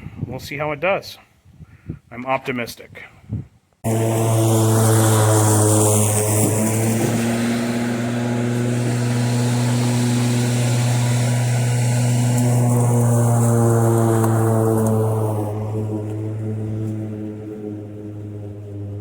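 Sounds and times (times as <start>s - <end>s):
electric lawn mower mowing: 3.8s - 19.0s.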